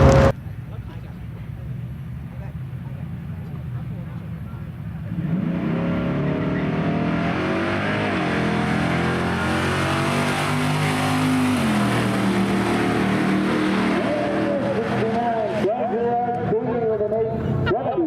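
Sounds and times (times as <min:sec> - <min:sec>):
car engine revving hard: 0:05.0 - 0:15.8.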